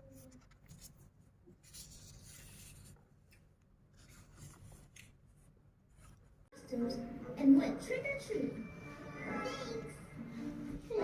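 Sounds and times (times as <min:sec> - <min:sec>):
soft scratching or rubbing: 0:00.0 - 0:03.0.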